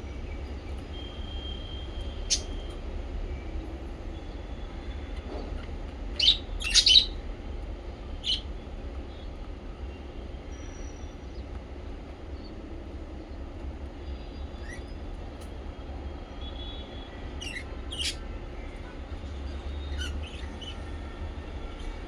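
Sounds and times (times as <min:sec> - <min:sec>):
parrots chirping: 0:02.2 - 0:02.7, 0:06.1 - 0:07.2, 0:08.2 - 0:08.4, 0:17.4 - 0:18.2, 0:19.8 - 0:20.7.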